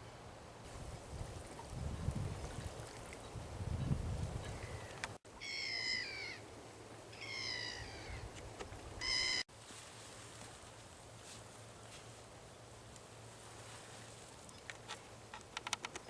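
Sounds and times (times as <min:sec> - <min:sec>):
bird calling: 0:04.4 - 0:06.4, 0:07.1 - 0:08.3, 0:09.0 - 0:09.5.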